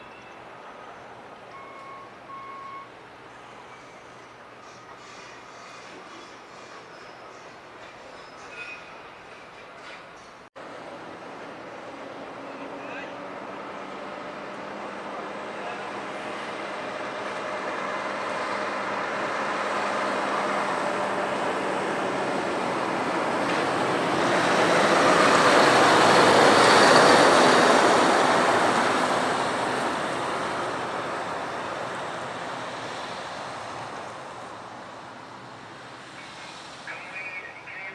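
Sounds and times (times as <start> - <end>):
heavy lorry driving past: 10.6 - 37.4.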